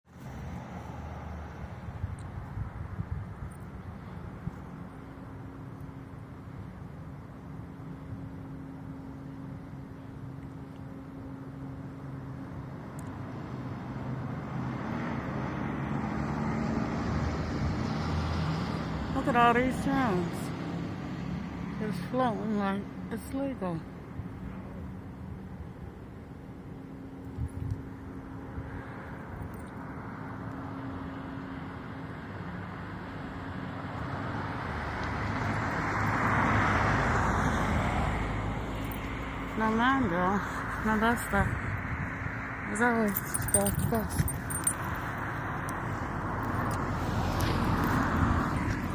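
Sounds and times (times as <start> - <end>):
traffic noise: 0.0 - 48.9
engine drone: 0.1 - 48.9
vehicle approaching: 12.0 - 48.9.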